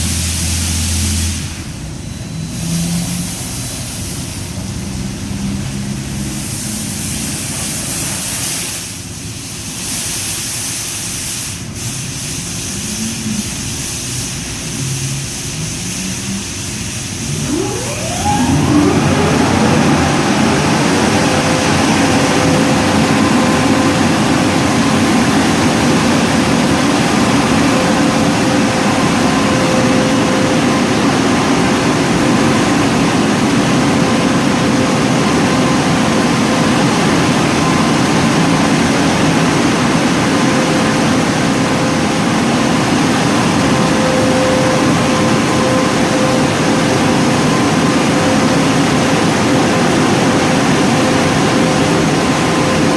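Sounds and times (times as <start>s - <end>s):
dryer blower whining and rushing: 16.2s - 52.9s.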